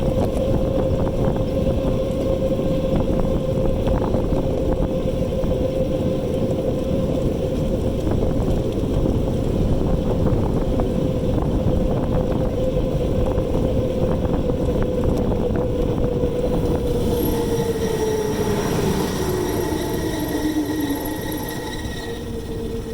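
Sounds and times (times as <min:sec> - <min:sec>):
wind rush on microphone: 0:00.0 - 0:22.9
electric motor whining: 0:16.3 - 0:22.9.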